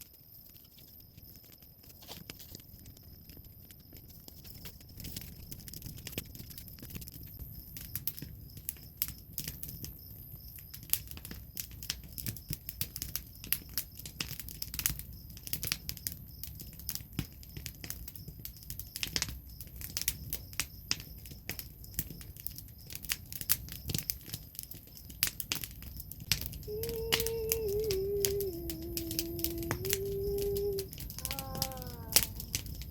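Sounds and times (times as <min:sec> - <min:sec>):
wood fire crackling and popping: 0:00.0 - 0:32.9
woman singing a held note: 0:26.7 - 0:32.6.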